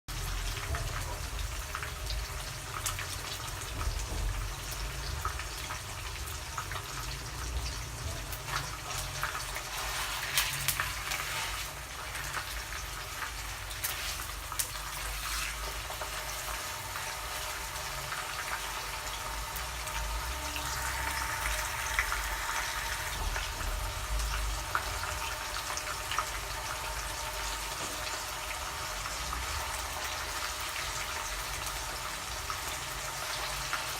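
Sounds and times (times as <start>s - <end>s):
fish frying in hot oil: 0.1s - 33.9s.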